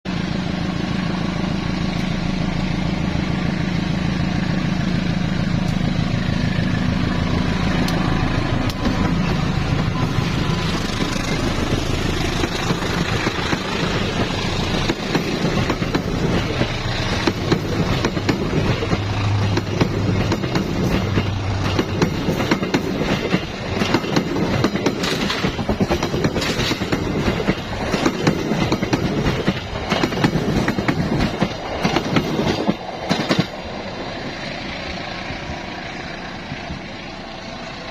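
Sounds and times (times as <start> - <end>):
train passing with low hum: 0.1 - 37.9
wheels clattering over rail joints: 10.6 - 33.8.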